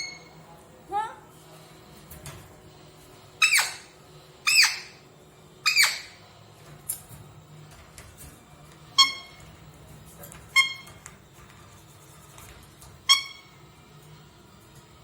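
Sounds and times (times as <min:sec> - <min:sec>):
parrot squawking: 0:03.4 - 0:05.0, 0:05.6 - 0:06.2, 0:09.0 - 0:09.4, 0:13.0 - 0:13.6.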